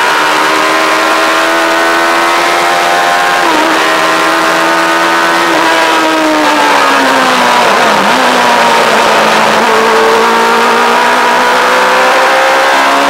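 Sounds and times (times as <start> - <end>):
motorcycle engine revving down: 0.0 - 13.0.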